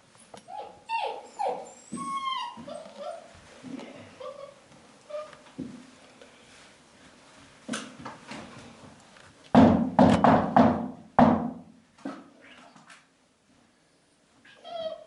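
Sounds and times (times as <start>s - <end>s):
loud hard thumps: 9.6s - 11.6s.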